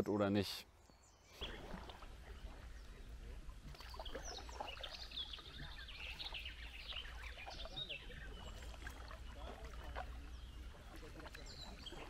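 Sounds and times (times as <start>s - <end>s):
birds chirping and whistling: 3.8s - 12.0s.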